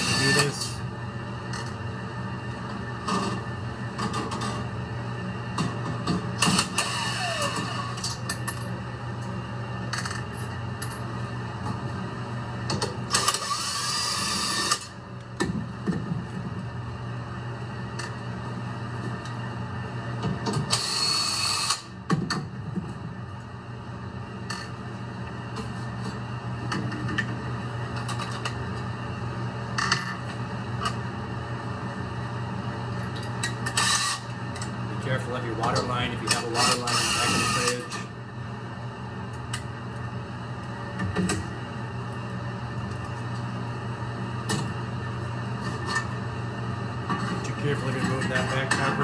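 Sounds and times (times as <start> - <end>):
power drill running: 0.0 - 0.7, 6.4 - 8.2, 13.2 - 14.9, 20.7 - 21.9
steady low hum: 0.0 - 49.0.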